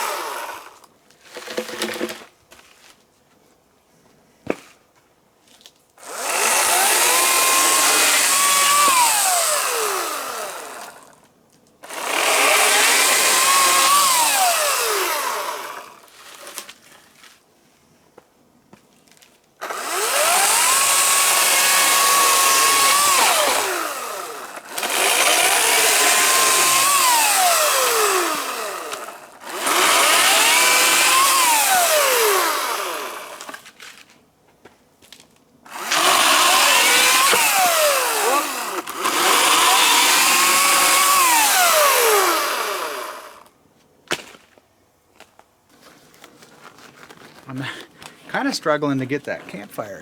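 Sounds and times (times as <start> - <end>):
electric blower motor whining: 0.0 - 0.8, 6.0 - 11.1, 11.8 - 16.0, 19.6 - 33.6, 35.7 - 43.5.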